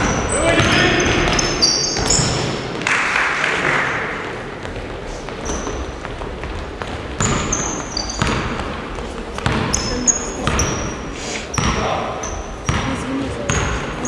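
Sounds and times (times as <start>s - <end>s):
basketballs bouncing on gym floor: 0.0s - 14.0s
short high squeaks: 0.3s - 2.4s, 7.5s - 8.2s.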